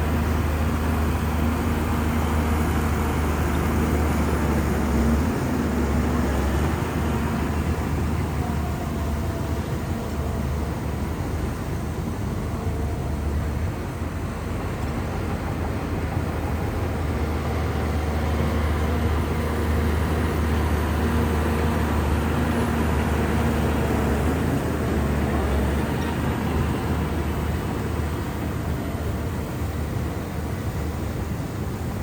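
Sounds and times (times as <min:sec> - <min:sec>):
bulldozer diesel engine running: 0:00.0 - 0:32.0.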